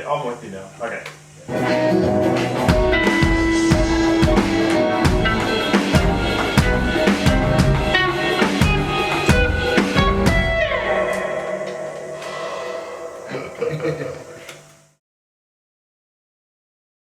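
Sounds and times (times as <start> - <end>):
electric guitar playing: 1.5 - 13.3
drum kit playing: 1.5 - 14.1.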